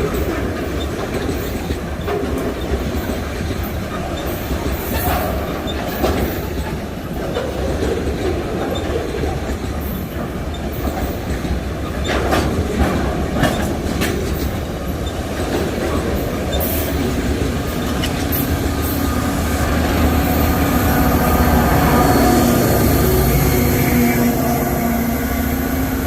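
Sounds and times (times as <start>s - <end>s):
train wheels clicking over rail joints: 0.0s - 26.0s
engine hum: 15.9s - 26.0s.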